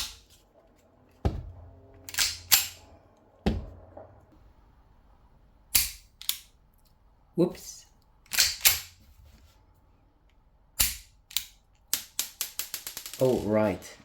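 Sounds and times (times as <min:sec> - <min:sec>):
airsoft pistol mechanism clacking: 0:02.1 - 0:02.8, 0:05.7 - 0:07.0, 0:08.2 - 0:09.0, 0:10.8 - 0:13.2.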